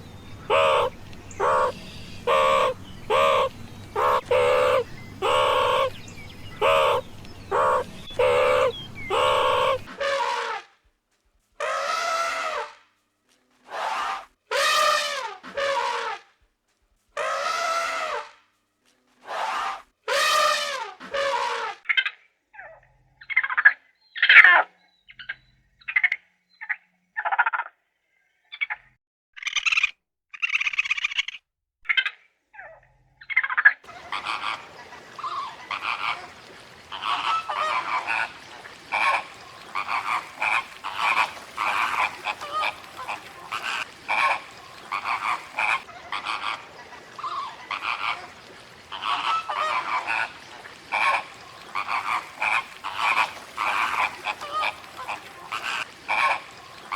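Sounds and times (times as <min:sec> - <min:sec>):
background hiss: 0:00.0 - 0:09.9, 0:33.9 - 0:56.9
frogs croaking: 0:00.0 - 0:09.9, 0:33.3 - 0:56.9.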